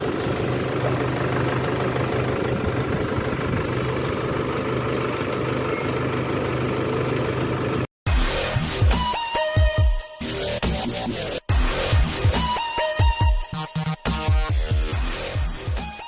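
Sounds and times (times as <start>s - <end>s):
vehicle engine idling: 0.0s - 7.9s.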